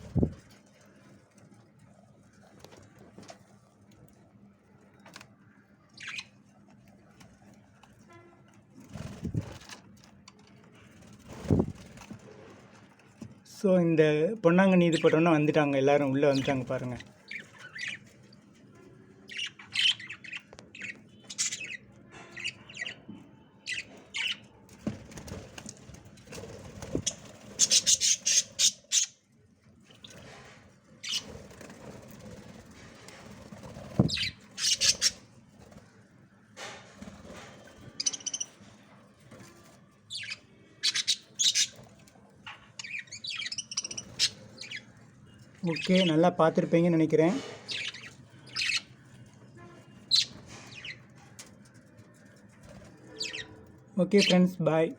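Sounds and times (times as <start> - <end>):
budgies chirping and squawking: 5.9 - 6.3, 16.3 - 18.1, 19.2 - 24.5, 26.6 - 29.2, 31.0 - 32.4, 33.4 - 35.3, 37.9 - 38.6, 40.1 - 46.2, 47.6 - 49.2, 50.0 - 51.5, 52.4 - 54.4.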